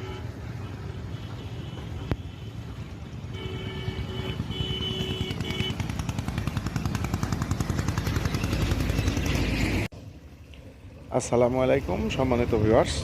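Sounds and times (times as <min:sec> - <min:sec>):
vehicle horn: 0:00.0 - 0:05.9.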